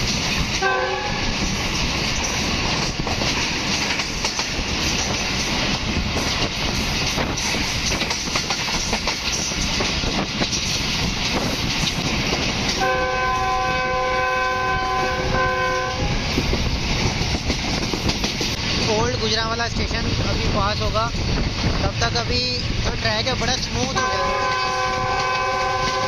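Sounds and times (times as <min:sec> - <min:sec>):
train wheels clattering: 0:00.0 - 0:26.0
train horn blast: 0:00.6 - 0:01.3, 0:12.8 - 0:16.2, 0:23.9 - 0:26.0.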